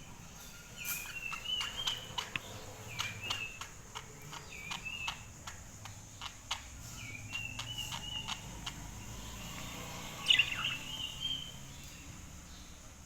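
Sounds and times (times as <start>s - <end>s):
budgerigar chirping: 0.9s - 5.6s, 6.2s - 11.7s
sharp clicks: 1.8s - 8.9s.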